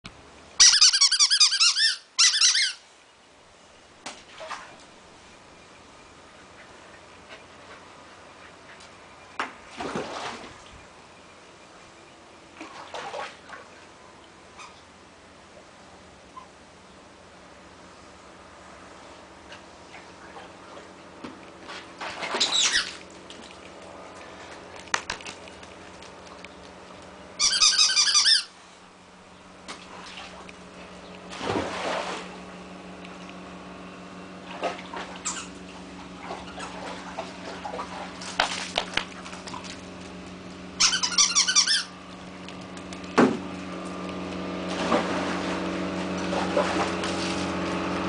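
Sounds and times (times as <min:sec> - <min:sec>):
squeaking on wet plastic pool: 0:00.6 - 0:02.8, 0:09.6 - 0:10.8, 0:12.6 - 0:13.8, 0:21.6 - 0:28.6, 0:29.6 - 0:33.2, 0:34.4 - 0:48.0.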